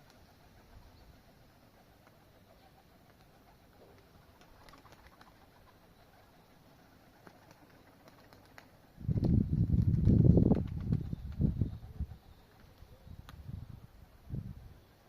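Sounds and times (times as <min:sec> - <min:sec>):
faint pigeon cooing: 0:00.0 - 0:09.8, 0:10.4 - 0:15.0.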